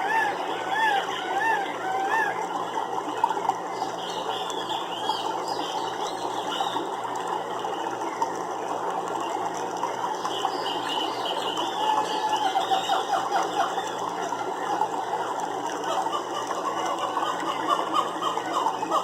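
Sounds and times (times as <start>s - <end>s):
rattling chorus of calls: 0.0s - 3.0s, 10.5s - 19.0s.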